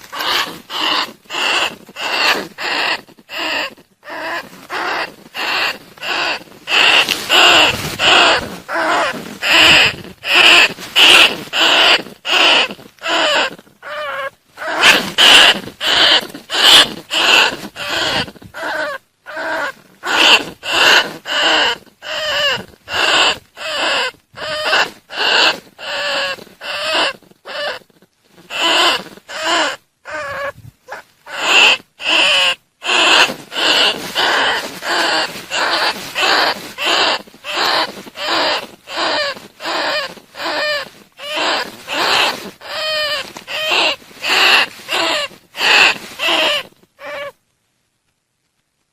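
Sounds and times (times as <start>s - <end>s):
rat squeaking cries: 0.0s - 47.4s.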